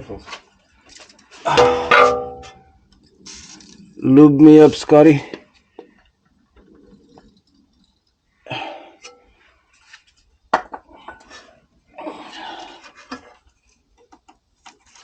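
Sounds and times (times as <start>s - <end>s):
sharp metallic clank: 1.5s - 2.7s.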